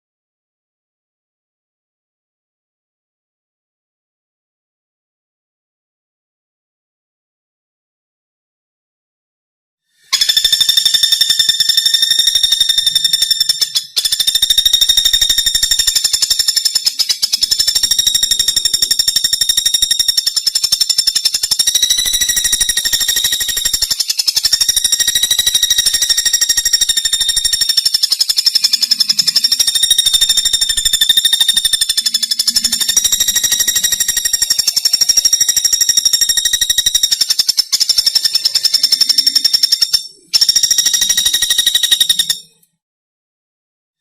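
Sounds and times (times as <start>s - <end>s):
woodpecker rattling trill: 10.1s - 42.6s.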